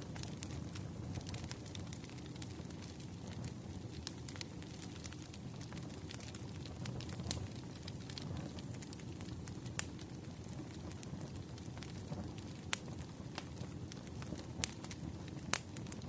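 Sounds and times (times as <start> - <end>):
wood fire crackling: 0.0 - 16.0
sharp pops of burning logs: 10.7 - 16.0.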